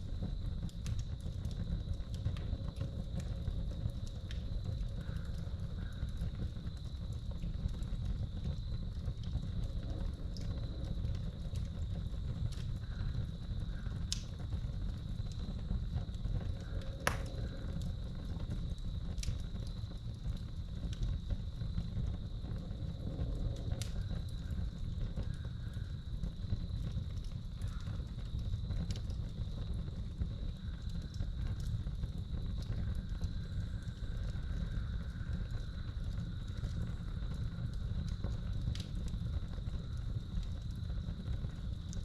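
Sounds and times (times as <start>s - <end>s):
sharp pops from fire: 0.0s - 42.0s
wood fire crackling: 0.0s - 42.0s
crickets trilling: 0.1s - 42.0s.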